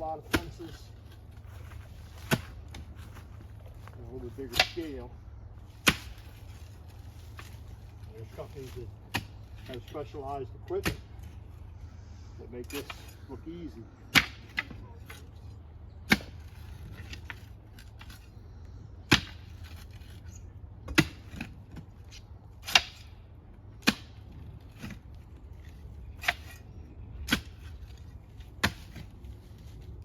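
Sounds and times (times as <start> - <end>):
hand tool striking into soil: 0.0 - 0.9, 1.6 - 3.3, 4.0 - 5.1, 5.7 - 6.6, 8.2 - 11.2, 16.1 - 18.2, 19.1 - 20.0, 20.9 - 21.6, 22.6 - 23.2, 23.8 - 26.6, 27.2 - 29.1.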